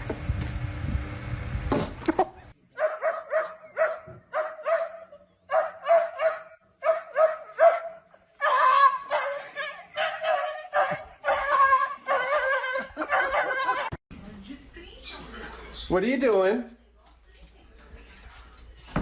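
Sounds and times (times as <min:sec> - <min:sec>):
dog yipping barks: 0:02.8 - 0:13.9.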